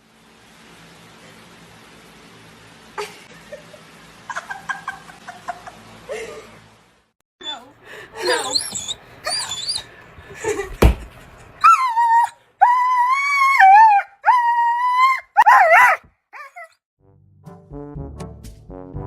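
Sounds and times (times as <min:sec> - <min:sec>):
dog whining: 0:07.4 - 0:09.9, 0:11.6 - 0:16.8
dog howling: 0:11.6 - 0:16.8.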